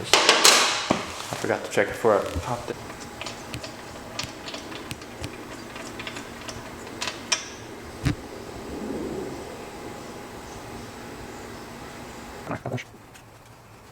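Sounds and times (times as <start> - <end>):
hand tools clicking and tapping: 0.0 - 8.2
steady background hum: 0.0 - 13.9.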